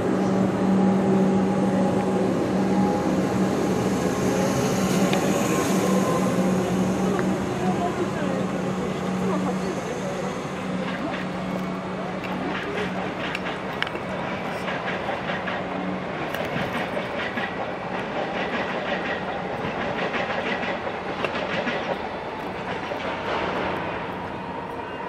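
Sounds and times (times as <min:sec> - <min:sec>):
steady train hum: 0:00.0 - 0:25.0
wheels clicking over rail joints: 0:10.8 - 0:24.0.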